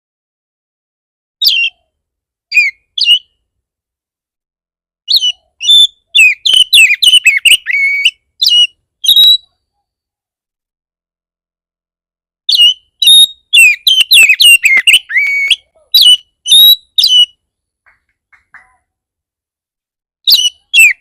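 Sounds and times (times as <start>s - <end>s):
bird whistling and chattering: 1.4s - 1.8s, 2.5s - 3.3s, 5.1s - 9.5s, 12.5s - 17.4s, 20.3s - 21.0s.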